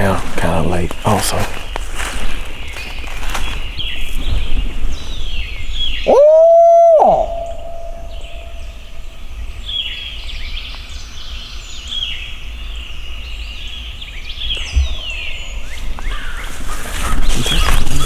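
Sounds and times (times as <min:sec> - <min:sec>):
low rumble on microphone: 0:00.0 - 0:10.4, 0:14.2 - 0:18.0
songbirds chirping: 0:00.0 - 0:18.0.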